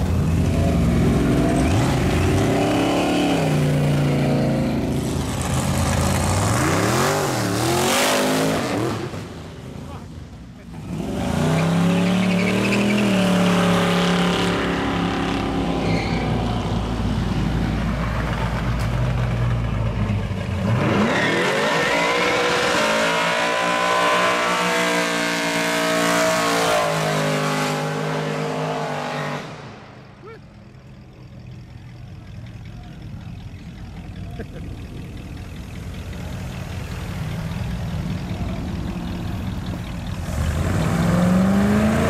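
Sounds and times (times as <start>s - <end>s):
second car engine revving up: 0.0s - 9.4s, 32.6s - 42.0s
car engine at high revs: 0.0s - 10.0s, 10.6s - 15.8s, 20.5s - 30.0s, 34.3s - 42.0s
quiet traffic: 0.0s - 42.0s.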